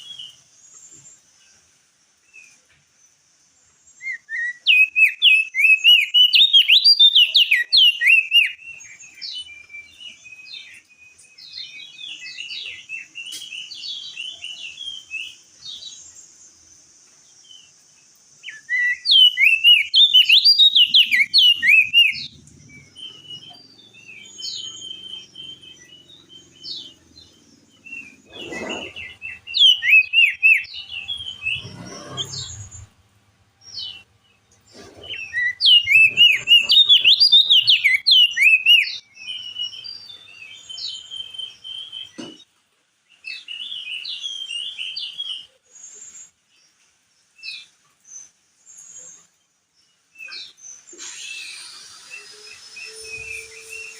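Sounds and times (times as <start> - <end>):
bird twittering: 4.0 - 10.8, 18.5 - 33.0, 34.8 - 42.2
bird high chirping whistles: 4.0 - 15.9, 18.4 - 27.0, 27.8 - 32.9, 34.9 - 42.2, 50.2 - 53.9.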